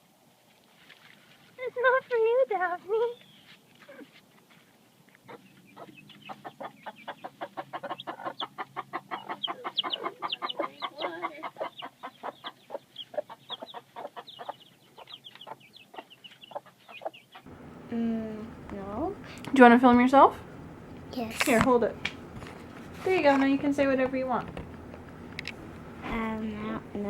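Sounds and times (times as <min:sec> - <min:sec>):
chickens clucking: 0:05.2 - 0:17.9.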